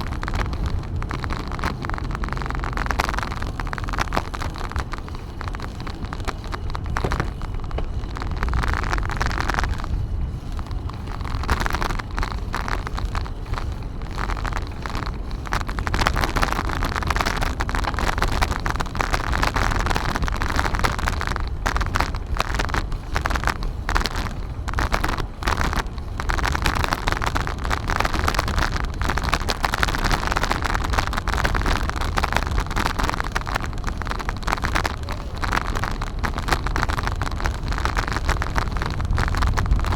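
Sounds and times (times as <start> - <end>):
steady low rumble: 0.0 - 39.9
wind buffeting microphone: 0.0 - 39.9.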